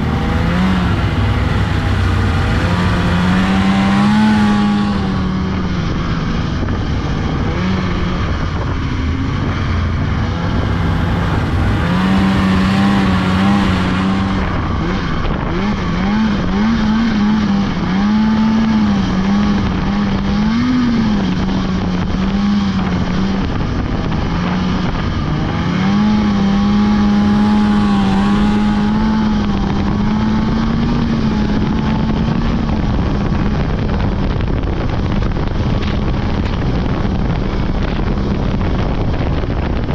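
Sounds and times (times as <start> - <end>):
two-stroke snowmobile engine running: 0.0 - 39.9.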